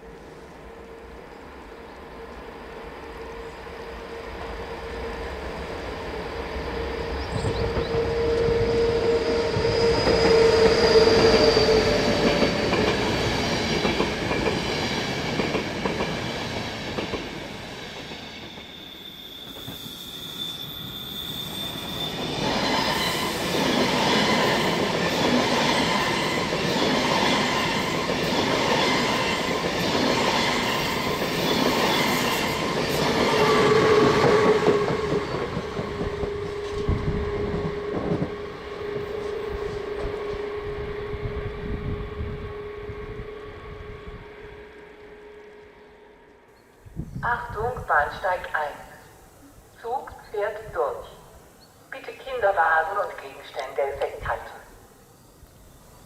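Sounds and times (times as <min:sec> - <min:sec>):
train wheels squealing: 0:03.2 - 0:41.2.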